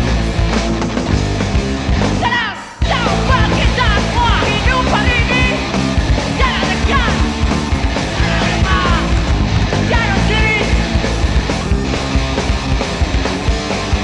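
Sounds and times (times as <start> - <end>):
live rock band playing: 0.0 - 14.0
person yelling vocals: 2.2 - 5.6, 6.4 - 7.3, 8.2 - 9.2, 9.8 - 10.8.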